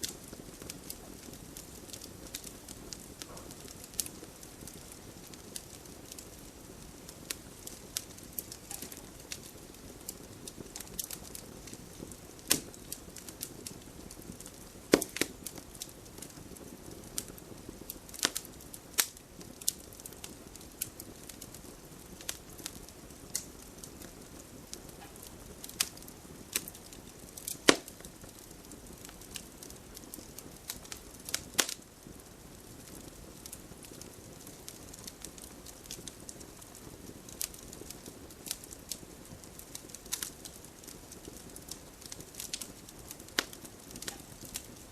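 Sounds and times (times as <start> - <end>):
fire popping: 0.0 - 44.9
wood fire crackling: 0.0 - 44.9.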